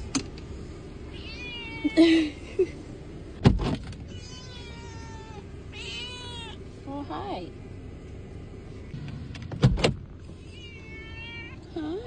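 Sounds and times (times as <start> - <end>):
cat meowing: 1.1 - 2.0, 4.1 - 6.6, 10.4 - 11.8.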